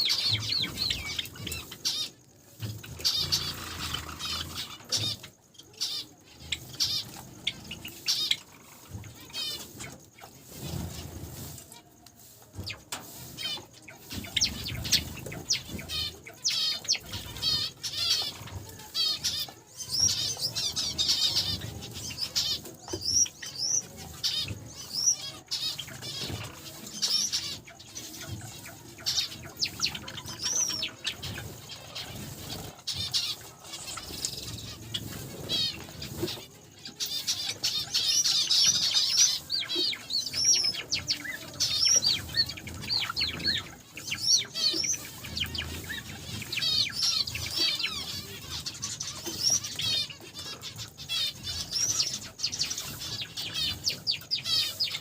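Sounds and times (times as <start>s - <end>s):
finches chirping: 0.0s - 55.0s
wings fluttering: 23.9s - 55.0s.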